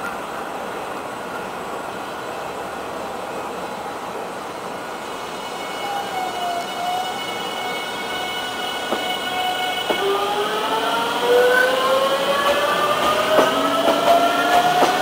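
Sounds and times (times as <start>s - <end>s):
train wheels on rails: 0.0s - 15.0s
faint high squealing: 5.2s - 11.9s
whine sliding down in pitch: 5.3s - 13.7s.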